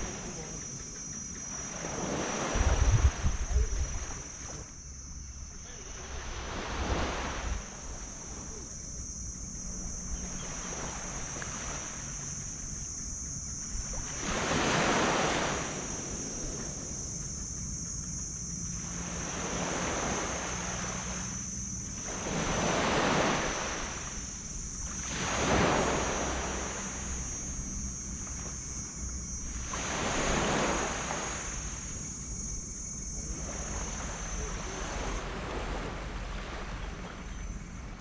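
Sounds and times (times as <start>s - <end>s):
high-pitched hiss: 0.0s - 38.0s
wind rumble on microphone: 0.0s - 38.0s
sea waves washing onto beach: 5.7s - 8.7s, 13.8s - 17.1s, 18.8s - 28.8s, 29.4s - 32.5s.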